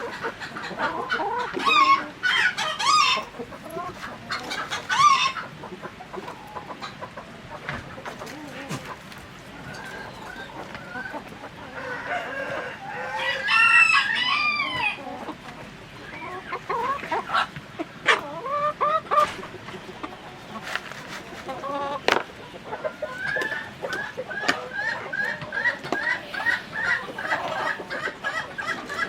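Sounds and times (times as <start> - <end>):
chickens clucking: 0.0 - 29.0
rooster crowing: 11.7 - 15.0.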